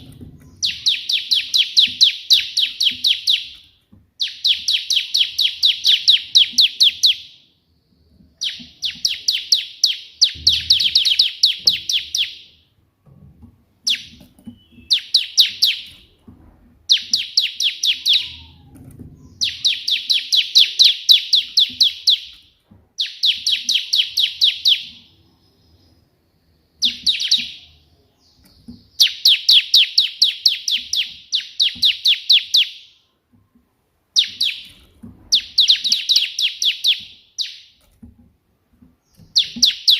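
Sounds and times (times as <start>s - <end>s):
bird singing sharp high notes: 13.9s - 16.1s, 16.9s - 18.6s.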